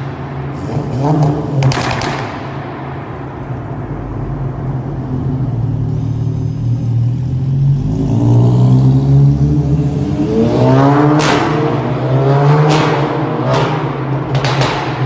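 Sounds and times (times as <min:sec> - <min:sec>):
exhaust cracks: 0:00.0 - 0:05.8, 0:12.7 - 0:15.0
car engine revving: 0:00.0 - 0:15.0.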